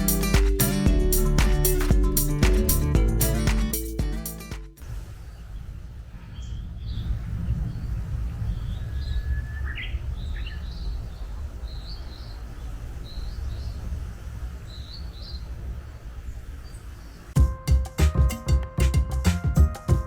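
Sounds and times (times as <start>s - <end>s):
birds chirping: 5.2s - 17.4s.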